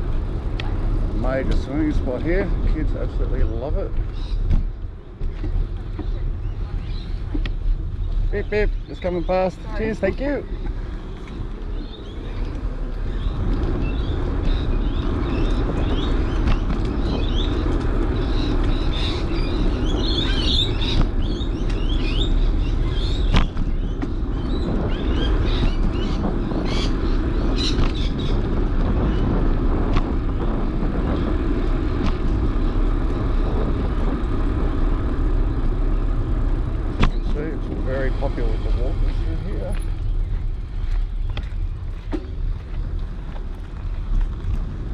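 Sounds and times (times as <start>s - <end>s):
birds chirping: 0.0s - 44.5s
bicycle riding rumble: 0.0s - 44.9s
wind on microphone: 0.0s - 44.9s.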